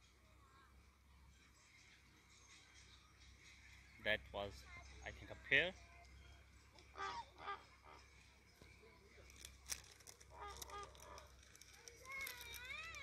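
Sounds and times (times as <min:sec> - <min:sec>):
faint honking bird calls: 0:05.9 - 0:08.3, 0:10.3 - 0:11.3.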